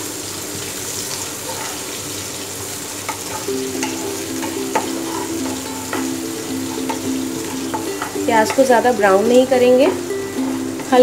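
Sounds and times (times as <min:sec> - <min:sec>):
onion sizzling in hot oil: 0:00.0 - 0:11.0
wooden spatula scraping pan: 0:03.3 - 0:06.0.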